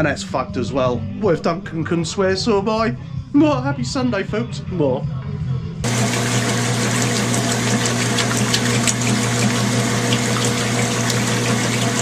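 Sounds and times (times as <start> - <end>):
washing machine motor hum: 5.8 - 12.0
water rushing: 5.9 - 12.0.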